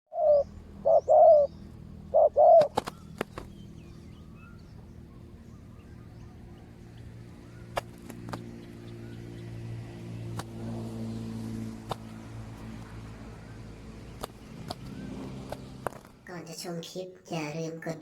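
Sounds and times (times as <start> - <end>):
dove cooing: 0.1 - 8.7.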